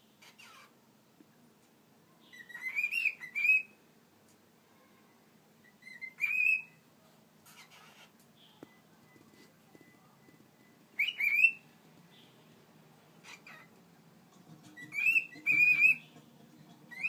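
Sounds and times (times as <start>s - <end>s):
cockatiel whistling: 2.4s - 3.7s, 5.8s - 6.8s, 11.0s - 11.6s, 14.8s - 16.0s
faint rustles: 7.0s - 10.9s.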